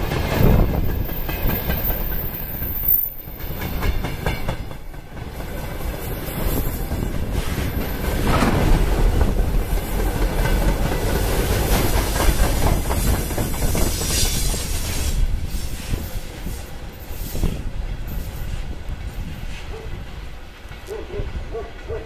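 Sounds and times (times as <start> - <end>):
freight wagons rumbling and clattering: 0.0 - 3.8, 6.0 - 13.9.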